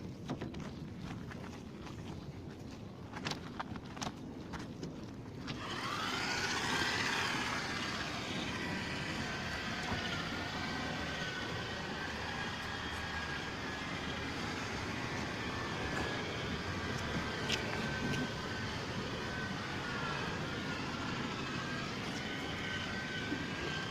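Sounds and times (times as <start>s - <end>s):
machine motor whining: 5.5s - 23.9s.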